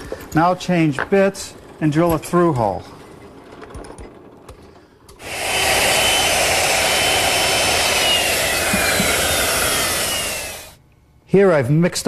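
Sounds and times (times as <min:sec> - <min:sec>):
power drill boring into wood: 0:05.2 - 0:10.8.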